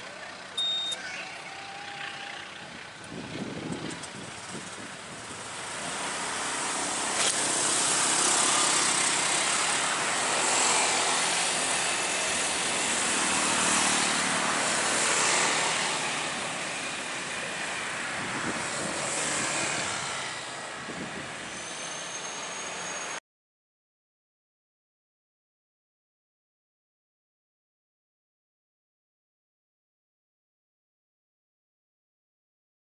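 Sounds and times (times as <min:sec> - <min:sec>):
faint high squeal: 0:00.6 - 0:02.6, 0:21.4 - 0:23.2.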